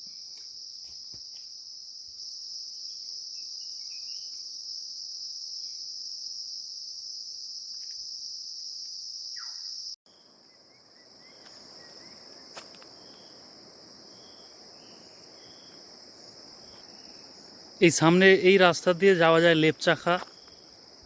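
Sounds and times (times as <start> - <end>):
high-pitched insect drone: 0.0 - 10.0
faint chirps: 2.9 - 4.5, 8.9 - 13.4.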